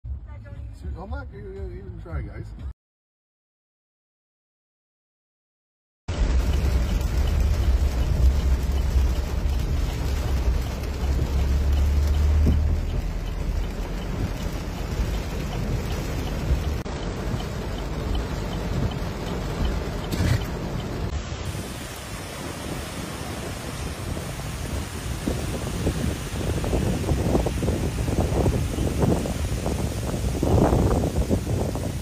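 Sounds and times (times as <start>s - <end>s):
deep rumble: 6.1s - 21.4s
floodwater splashing against car: 6.1s - 32.0s
heavy rain pelting a car: 6.1s - 32.0s.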